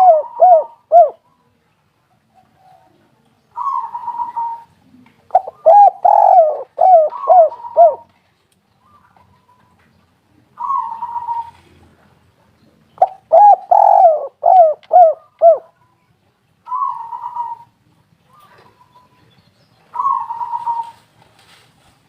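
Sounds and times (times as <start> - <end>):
dove cooing: 0.0 - 1.2, 3.6 - 8.1, 10.5 - 11.8, 13.0 - 15.8, 16.7 - 19.2, 19.9 - 21.1.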